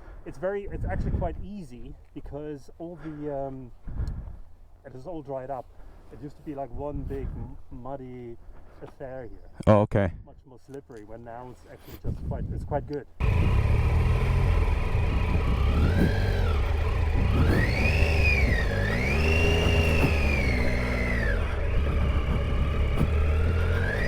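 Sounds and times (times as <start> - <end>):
motorcycle engine revving: 13.2 - 24.0.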